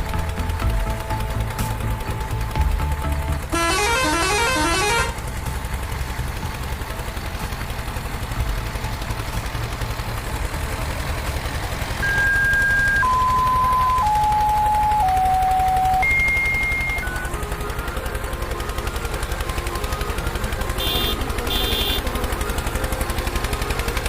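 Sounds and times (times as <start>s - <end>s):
rising electronic notes: 0.0s - 5.7s, 11.8s - 24.0s
low engine rumble: 0.0s - 24.0s
descending electronic tones: 12.0s - 17.6s.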